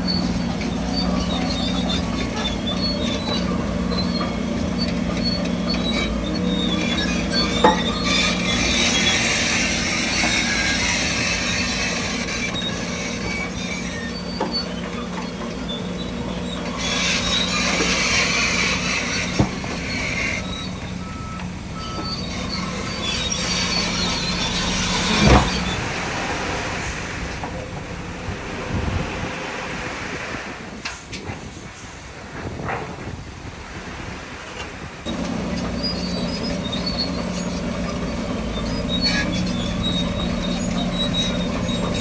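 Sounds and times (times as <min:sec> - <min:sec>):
heavy diesel machinery running: 0:00.0 - 0:34.2, 0:34.8 - 0:42.0
reversing beeps: 0:20.6 - 0:23.0.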